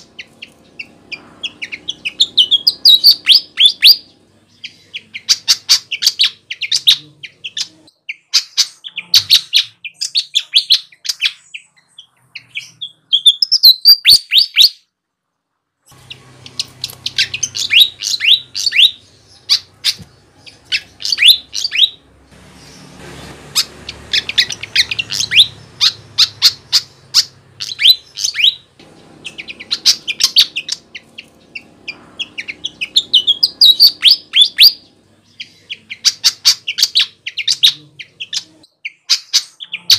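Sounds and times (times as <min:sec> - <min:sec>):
faint low hum: 0:00.0 - 0:07.9, 0:15.1 - 0:38.7
bird chirping song: 0:00.0 - 0:15.0, 0:15.9 - 0:39.9.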